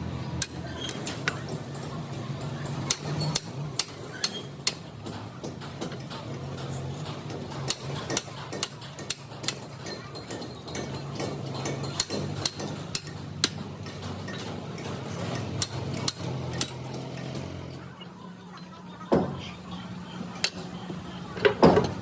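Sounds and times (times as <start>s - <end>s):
hand tools clicking on metal: 2.8s - 17.5s.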